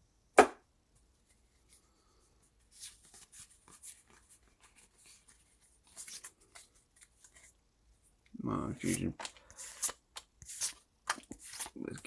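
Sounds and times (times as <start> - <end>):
sharp knock: 0.4 - 0.6
trading cards rustling and sliding: 2.6 - 7.6, 8.7 - 12.0.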